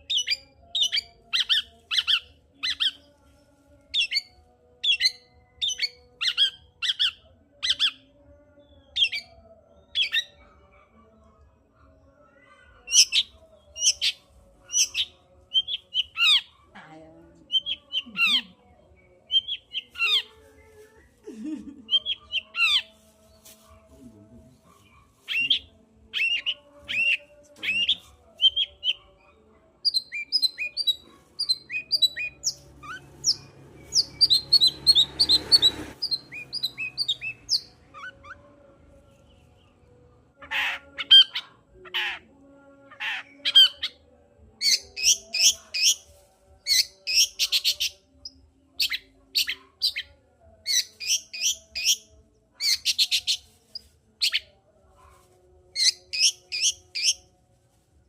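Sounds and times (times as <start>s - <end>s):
bird singing sharp chirps: 29.9s - 37.7s.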